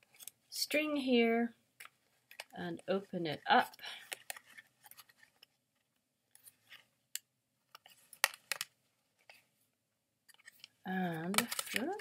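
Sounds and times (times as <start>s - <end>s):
paper rustling: 10.3s - 12.0s.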